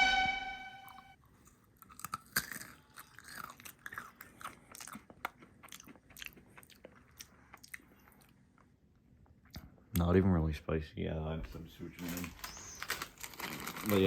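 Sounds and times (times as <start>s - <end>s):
person crunching and chewing nuts: 1.3s - 8.6s.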